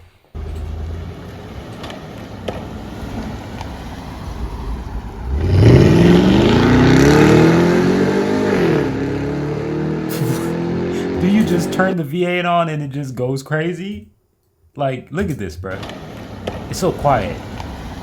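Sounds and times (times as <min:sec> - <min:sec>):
car engine accelerating hard: 0:00.4 - 0:12.0, 0:15.7 - 0:18.0.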